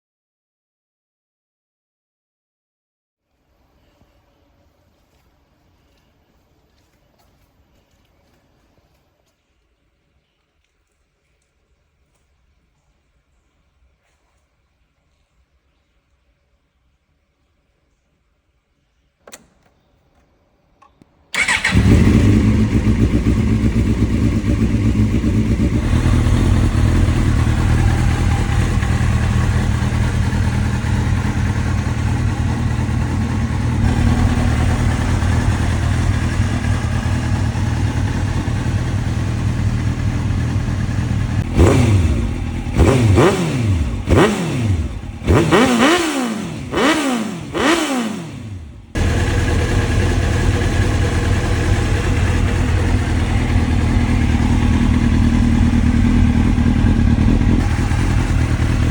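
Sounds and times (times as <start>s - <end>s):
click: 19.2s - 21.7s
engine throttle blips: 21.3s - 58.9s
motorcycle engine idling: 21.3s - 58.9s.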